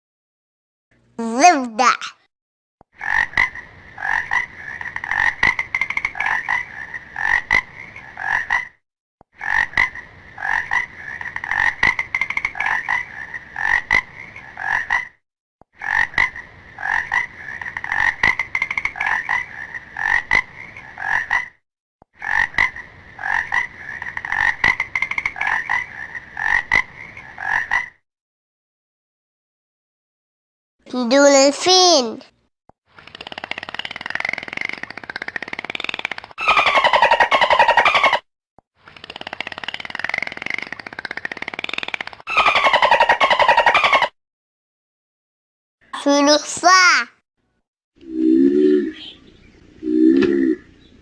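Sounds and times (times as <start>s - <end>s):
frog croaking: 3.0s - 8.8s, 9.4s - 15.2s, 15.8s - 21.6s, 22.2s - 28.0s, 36.4s - 38.2s, 39.8s - 44.1s.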